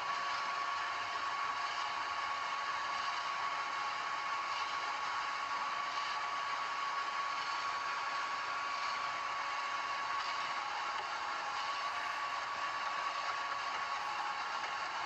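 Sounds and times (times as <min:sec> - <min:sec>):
concrete mixer running: 0:03.5 - 0:15.0.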